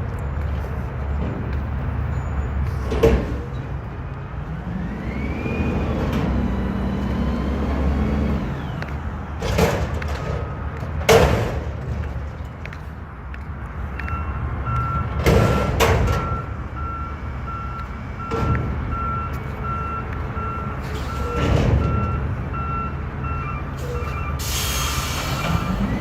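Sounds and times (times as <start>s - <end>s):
diesel engine running low: 0.0s - 26.0s
truck backup alarm beeping: 1.0s - 2.9s, 13.8s - 26.0s
air brake hissing bursts: 23.8s - 26.0s.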